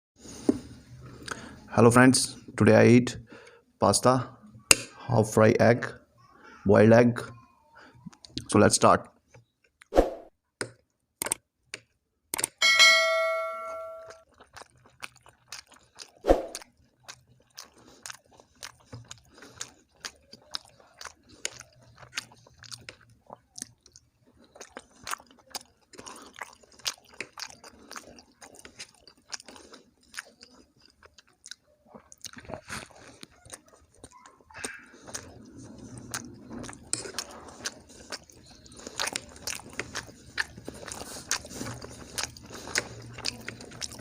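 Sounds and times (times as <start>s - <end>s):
mouth chewing wetly: 14.2s - 44.0s.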